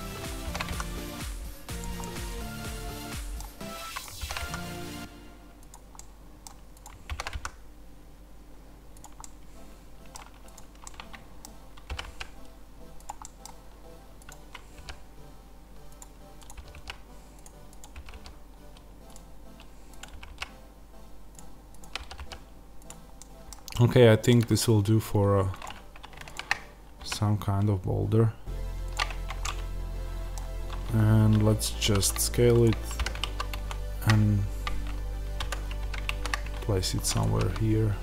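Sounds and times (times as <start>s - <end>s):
low steady hum: 0.0s - 38.0s
keyboard and mouse clicking: 0.4s - 1.0s, 5.6s - 7.6s, 9.0s - 9.4s, 10.0s - 13.6s, 14.2s - 15.0s, 15.9s - 20.6s, 21.3s - 24.5s, 25.5s - 27.7s, 28.9s - 29.7s, 32.1s - 37.7s.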